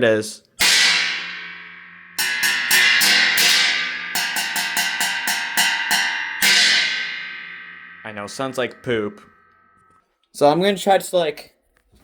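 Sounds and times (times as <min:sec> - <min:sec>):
cymbal strikes ringing: 0:00.6 - 0:10.0.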